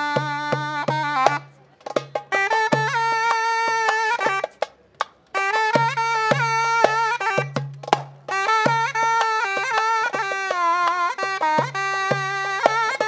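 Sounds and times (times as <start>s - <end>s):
drum beating time: 0.0s - 13.0s
shawm playing a melody: 0.0s - 13.0s.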